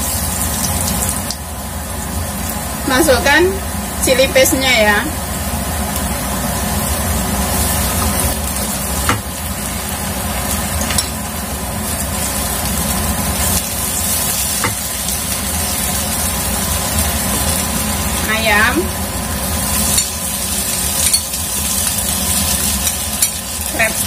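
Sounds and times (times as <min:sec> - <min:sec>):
garlic sizzling in hot oil: 0:00.0 - 0:24.0
spatula tapping a pan: 0:09.0 - 0:09.3.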